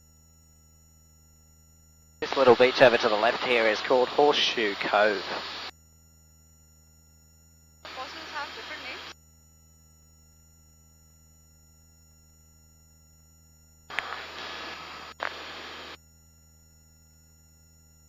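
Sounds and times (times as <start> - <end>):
intercom low hum: 1.0 - 9.2, 13.9 - 16.0
thin steady tones: 2.2 - 5.7, 7.8 - 9.1
headset microphone click: 13.9 - 14.2, 15.2 - 15.4.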